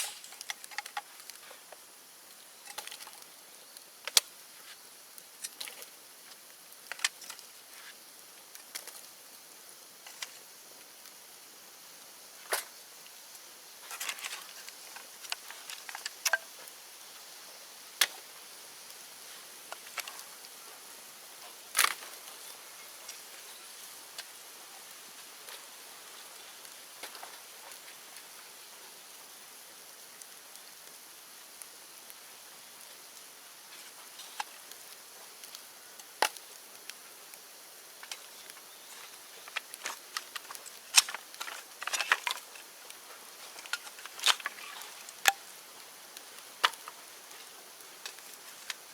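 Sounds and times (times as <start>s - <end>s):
sharp pops and snaps: 0.0s - 9.1s, 33.8s - 48.9s
bonfire crackling: 0.0s - 48.9s
faint high hiss: 0.0s - 48.9s.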